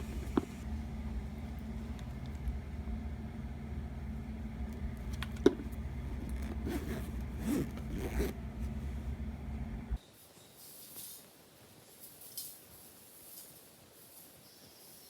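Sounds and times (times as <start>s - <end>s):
vehicle cabin hum: 0.0s - 10.0s
zipper rasping: 6.1s - 8.4s.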